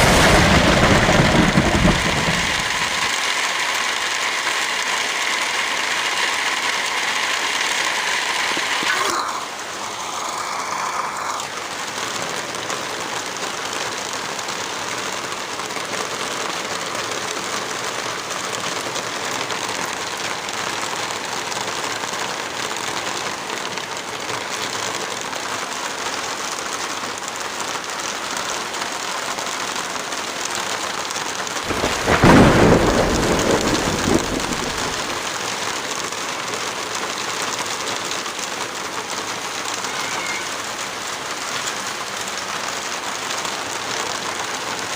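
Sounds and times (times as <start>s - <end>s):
thunder clap rumbling: 0.0s - 3.1s, 31.7s - 35.3s
heavy rain falling: 0.0s - 44.9s.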